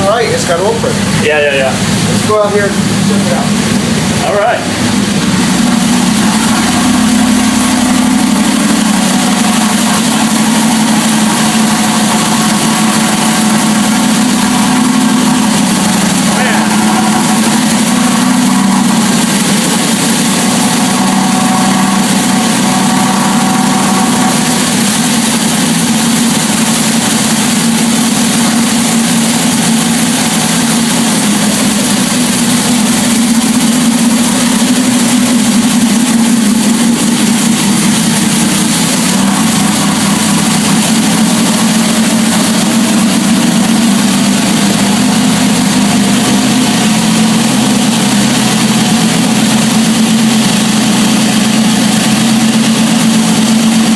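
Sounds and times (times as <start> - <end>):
big engine idling loudly: 0.0 - 53.9.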